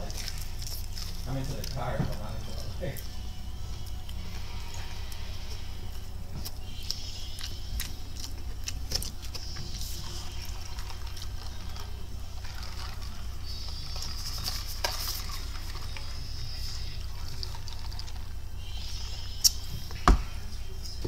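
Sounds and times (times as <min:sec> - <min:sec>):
person chewing: 0:00.0 - 0:20.0
low hum: 0:00.0 - 0:21.0.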